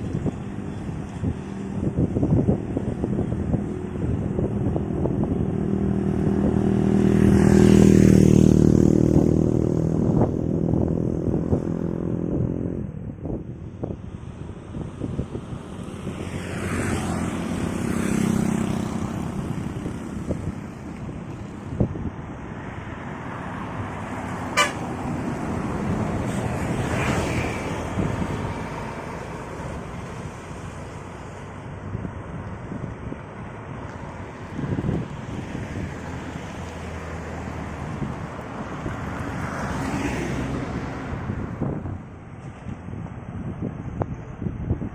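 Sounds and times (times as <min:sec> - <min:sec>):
vehicle passing whoosh: 0:00.0 - 0:43.6
low engine hum: 0:00.0 - 0:44.9
wind buffeting microphone: 0:00.0 - 0:44.9
heavy vehicle engine drone: 0:19.0 - 0:39.4.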